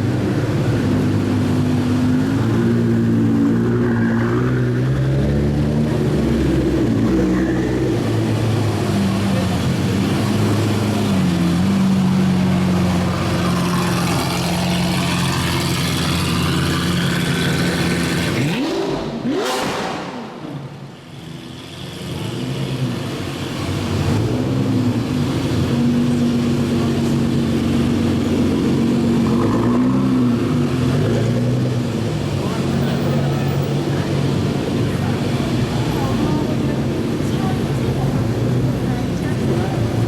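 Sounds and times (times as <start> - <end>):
supercar engines running: 0.0 - 40.0
engine revving sharply: 13.0 - 20.4.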